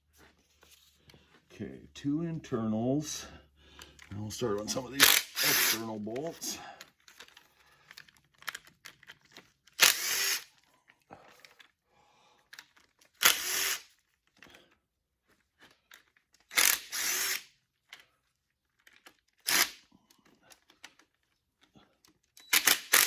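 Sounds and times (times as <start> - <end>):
small handling clicks: 3.7 - 11.8, 12.4 - 13.4, 14.0 - 16.9, 17.6 - 23.0
power tool bursts: 5.0 - 5.9, 9.8 - 10.5, 13.2 - 13.9, 16.5 - 17.5, 22.5 - 23.0.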